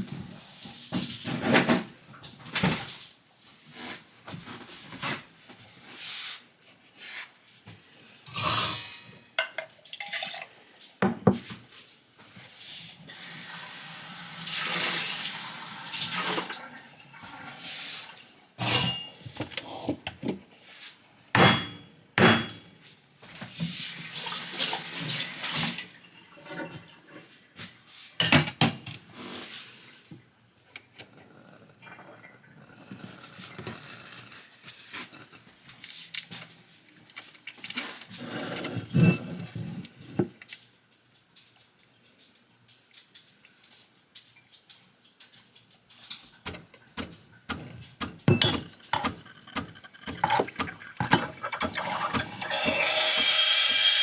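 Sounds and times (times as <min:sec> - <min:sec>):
clatter of cups and dishes: 0:08.3 - 0:11.7, 0:18.6 - 0:20.5, 0:25.6 - 0:27.4, 0:28.2 - 0:29.1, 0:31.9 - 0:40.8, 0:45.5 - 0:53.4
water running: 0:46.6 - 0:54.0.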